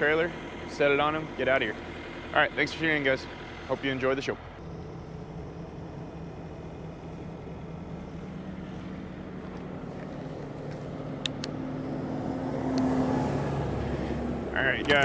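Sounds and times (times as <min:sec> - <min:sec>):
truck diesel engine running: 0:00.0 - 0:15.0
sharp clicks: 0:11.2 - 0:11.6.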